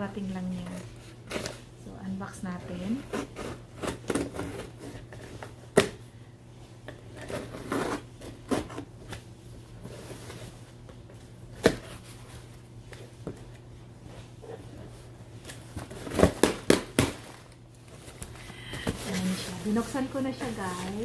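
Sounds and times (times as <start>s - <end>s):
packaging rustling and scraping: 2.6s - 5.6s, 6.9s - 9.1s, 9.7s - 10.8s, 14.2s - 21.0s.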